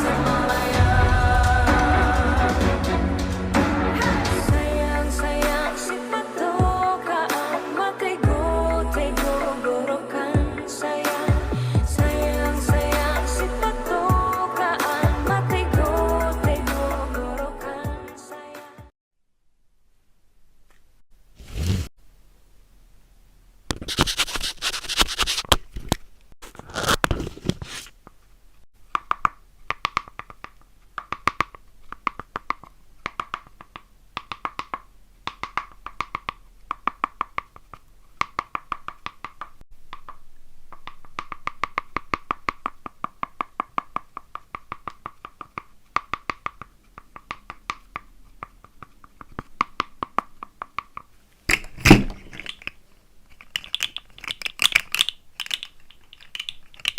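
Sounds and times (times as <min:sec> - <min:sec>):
paper crinkling and tearing: 0:23.8 - 0:28.0.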